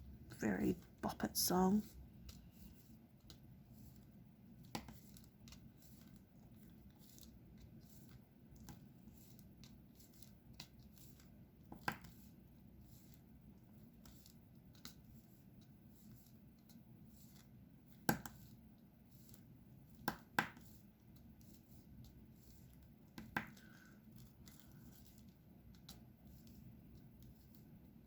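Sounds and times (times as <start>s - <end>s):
low room hum: 0.0s - 28.0s
small clicks and taps: 4.6s - 12.1s, 22.0s - 26.5s.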